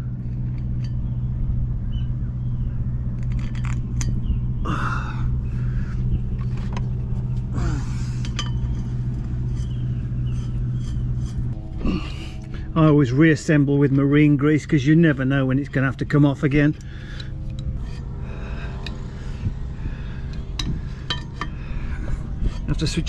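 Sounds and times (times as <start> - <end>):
low engine-like hum: 0.0 - 23.0.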